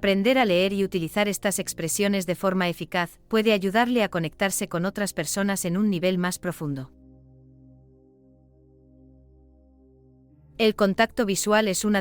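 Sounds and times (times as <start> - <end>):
ambient pad music: 5.4 - 12.0.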